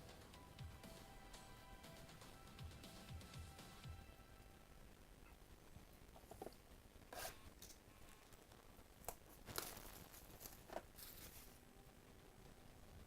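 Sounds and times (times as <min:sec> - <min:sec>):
wrapper being torn and crinkled: 0:07.6 - 0:11.6.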